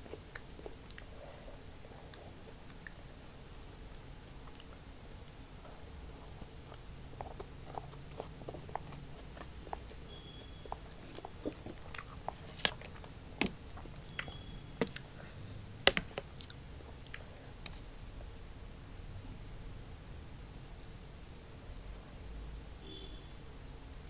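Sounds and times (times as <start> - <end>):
mouth clicks and crunches: 0.0 - 1.2, 6.2 - 18.3
person chewing food: 0.0 - 3.1, 5.6 - 18.3.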